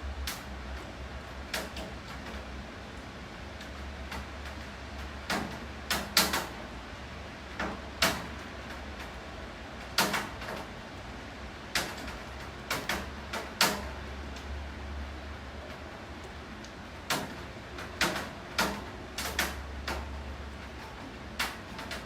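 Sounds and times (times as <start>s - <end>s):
low steady hum: 0.0s - 5.2s
steady rain: 0.0s - 22.0s.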